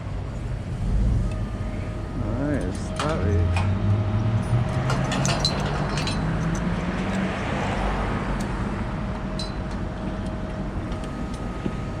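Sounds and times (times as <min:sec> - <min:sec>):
faint steady whine: 0:00.0 - 0:04.5, 0:08.5 - 0:12.0
truck engine running: 0:00.0 - 0:12.0.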